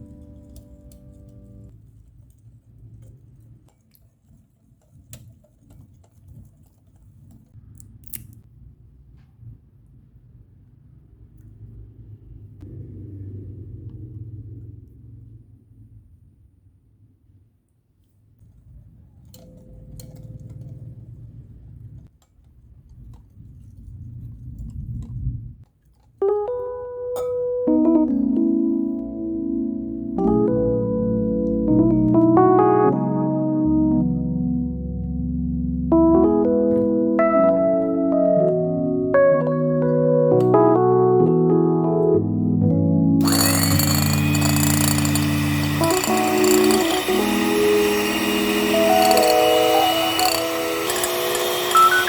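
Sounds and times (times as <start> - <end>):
electric piano music: 0.0 - 1.7, 26.2 - 52.0
utensils clicking and tapping: 43.2 - 52.0.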